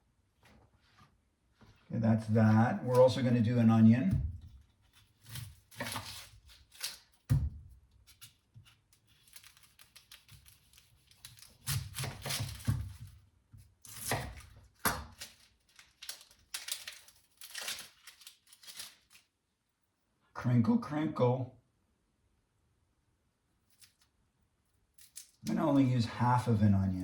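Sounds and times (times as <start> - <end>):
onion skin rustling and tearing: 4.5 - 19.3, 25.0 - 25.8.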